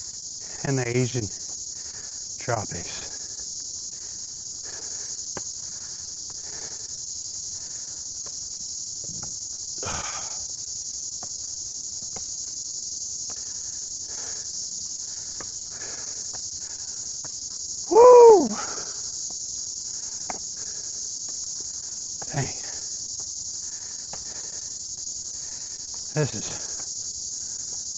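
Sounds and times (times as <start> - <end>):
high-pitched insect chorus: 0.0 - 27.9.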